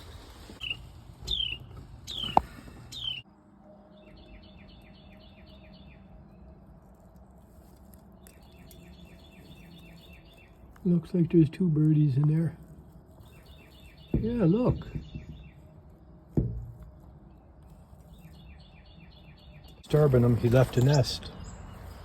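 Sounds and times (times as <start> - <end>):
wren chirps: 0.0 - 3.2, 7.7 - 11.0, 13.2 - 16.0, 17.2 - 22.0
sharp knock: 14.1 - 15.6
wren chattering: 17.8 - 22.0.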